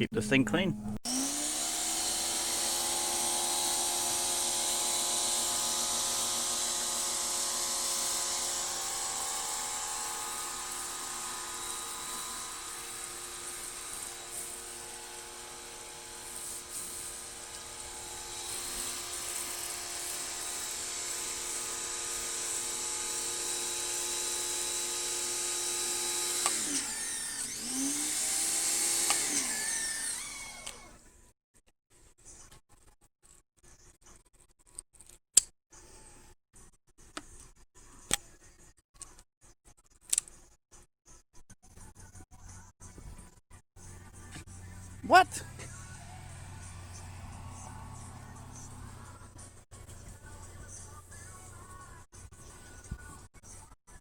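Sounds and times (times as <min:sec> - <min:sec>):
pressure washer motor whine: 0:01.1 - 0:30.9, 0:45.0 - 0:49.2.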